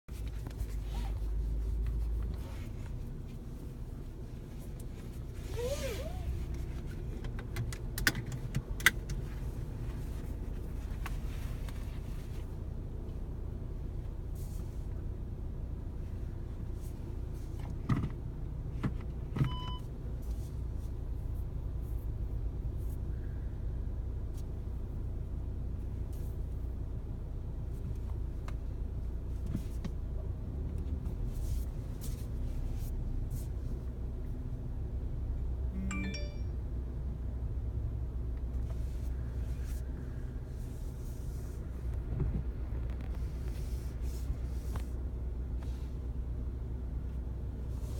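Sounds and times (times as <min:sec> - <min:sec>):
car cabin road rumble: 0:00.1 - 0:47.9
short pitched ping: 0:35.8 - 0:36.6.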